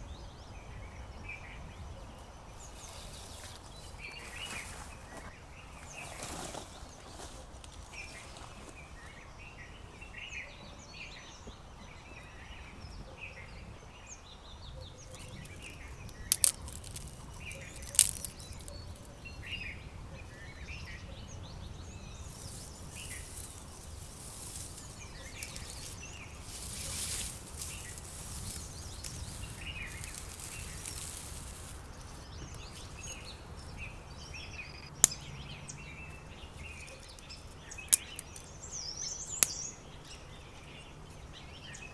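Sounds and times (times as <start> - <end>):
small birds chirping: 0.0 - 8.4, 9.0 - 41.9.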